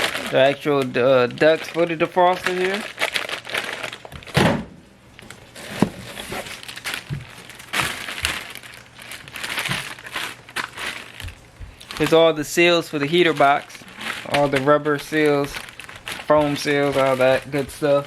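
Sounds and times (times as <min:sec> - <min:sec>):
packaging rustling and crinkling: 0:00.0 - 0:04.4, 0:05.2 - 0:18.0.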